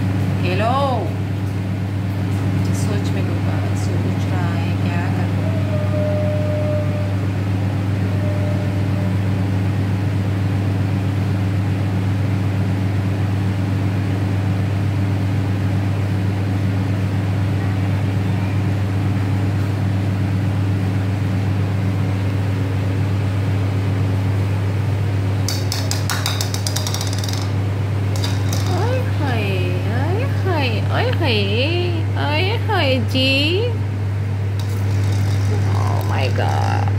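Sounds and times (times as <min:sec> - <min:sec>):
low machine hum: 0:00.0 - 0:36.9
rattle of sharp clicks: 0:25.5 - 0:28.9.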